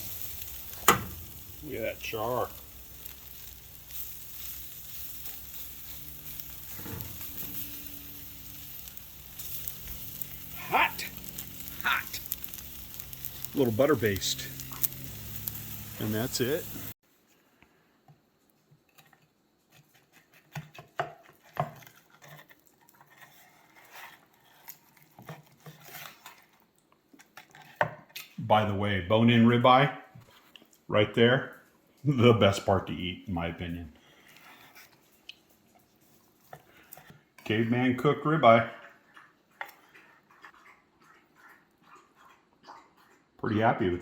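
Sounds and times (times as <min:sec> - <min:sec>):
metal utensils clinking and scraping: 0:00.0 - 0:16.9
meat sizzling on charcoal: 0:00.0 - 0:17.0, 0:30.9 - 0:40.5.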